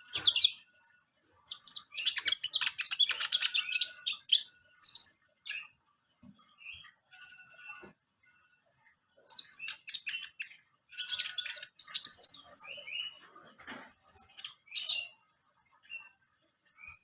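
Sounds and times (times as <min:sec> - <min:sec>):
bird chirping and trilling: 0:00.0 - 0:00.7, 0:01.5 - 0:05.8, 0:09.2 - 0:13.2, 0:14.0 - 0:16.2.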